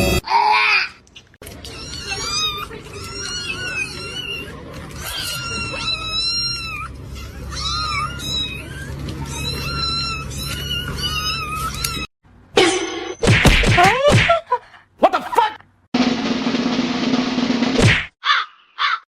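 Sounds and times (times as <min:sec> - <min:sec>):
cat meowing: 0:01.5 - 0:12.1.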